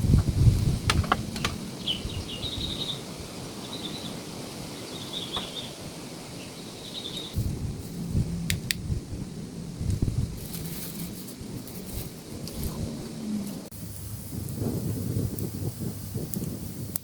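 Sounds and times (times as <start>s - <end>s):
small bird chirping: 0.0s - 7.4s
sharp clicks: 0.1s - 1.6s
low rumble: 7.3s - 16.0s.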